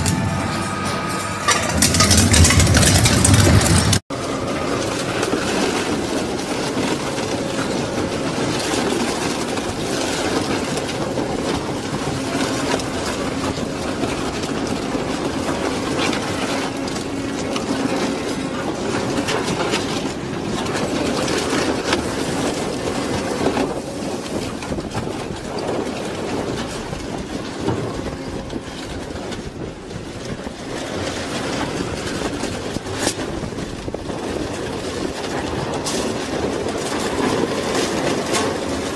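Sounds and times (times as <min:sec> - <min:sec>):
sharp metal crack: 0:00.0 - 0:04.0
shredder grinding metal: 0:00.0 - 0:05.6.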